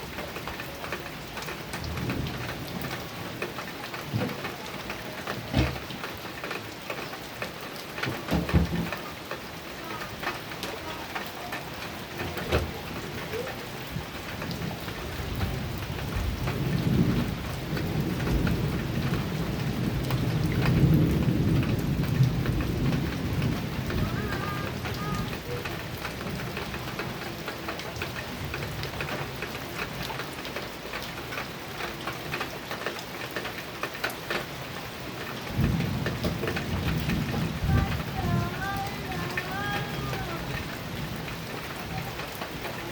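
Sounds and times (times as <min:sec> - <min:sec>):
heavy rain on a metal roof: 0:00.0 - 0:42.9
thunder rumbling: 0:00.7 - 0:06.1, 0:08.0 - 0:27.4, 0:34.6 - 0:42.9.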